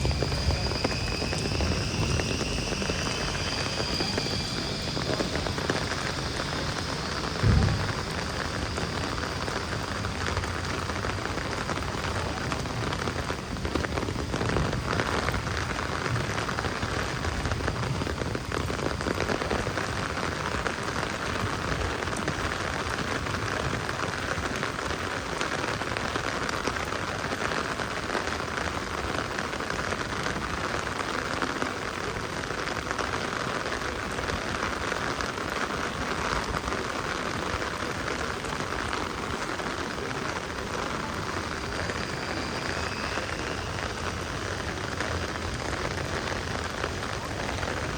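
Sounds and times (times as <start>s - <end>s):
heavy rain falling: 0.0s - 47.9s
dull low thump: 3.0s - 10.7s.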